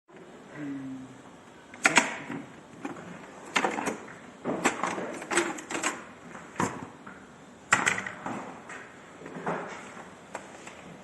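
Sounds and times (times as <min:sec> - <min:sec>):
clicks and clattering of hard parts: 0:01.8 - 0:06.8.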